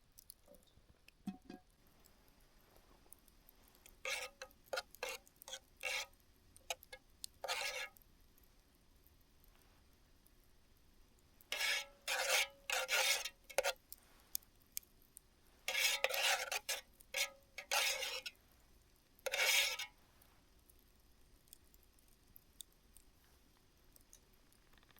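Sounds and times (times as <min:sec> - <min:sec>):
short rasping scrapes: 0:04.0 - 0:06.1, 0:06.7 - 0:08.0, 0:11.5 - 0:13.8, 0:15.7 - 0:18.3, 0:19.3 - 0:19.9.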